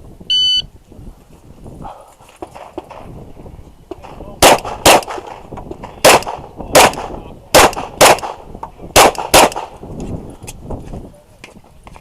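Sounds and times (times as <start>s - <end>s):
pistol shots with echo: 3.9s - 9.8s.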